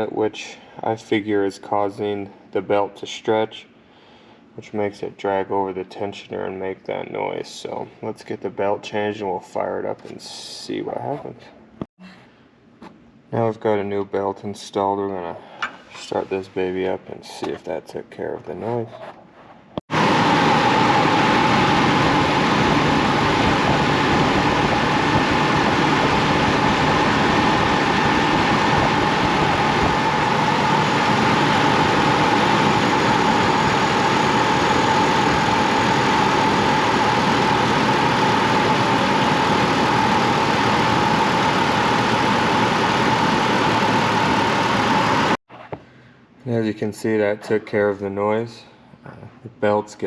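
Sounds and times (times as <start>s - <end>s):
engine running steadily: 19.9s - 45.4s.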